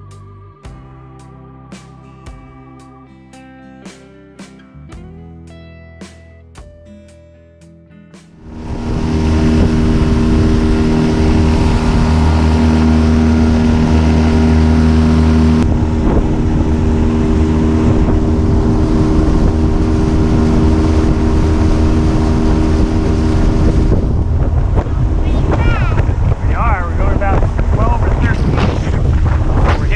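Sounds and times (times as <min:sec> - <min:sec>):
outboard motor running: 0:08.4 - 0:29.9.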